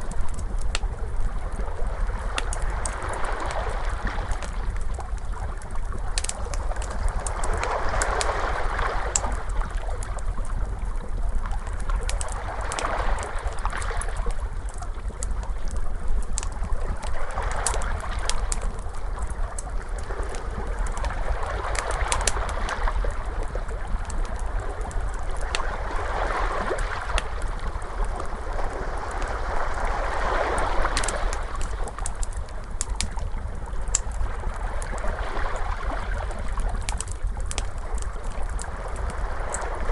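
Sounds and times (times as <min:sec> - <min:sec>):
fire crackling and popping: 0:00.0 - 0:39.9
ocean waves washing in: 0:07.0 - 0:09.6, 0:20.1 - 0:33.1.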